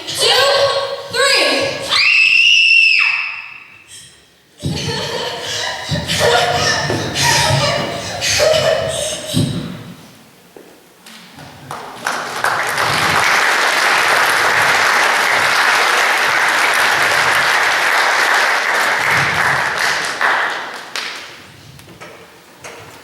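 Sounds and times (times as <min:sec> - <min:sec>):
audience applauding: 0:11.7 - 0:21.2.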